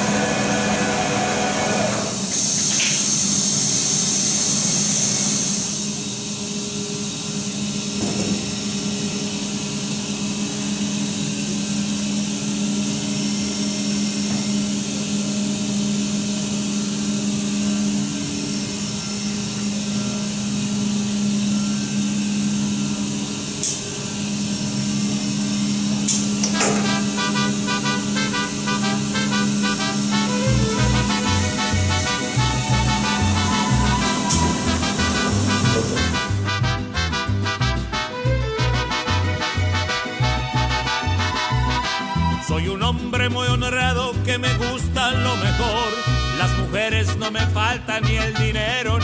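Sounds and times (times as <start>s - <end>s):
print machinery humming: 0.0s - 42.8s
hiss: 0.9s - 9.1s, 28.1s - 36.3s.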